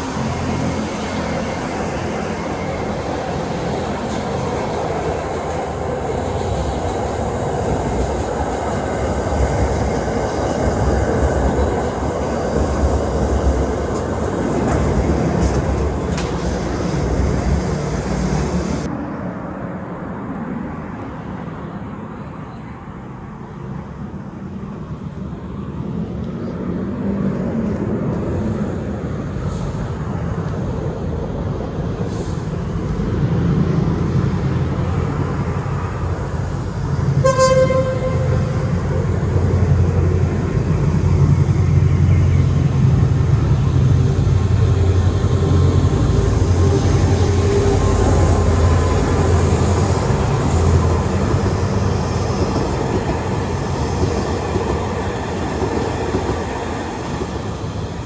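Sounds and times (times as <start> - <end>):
train engine rumble: 0.0 - 58.0
train horn blast: 37.2 - 38.8.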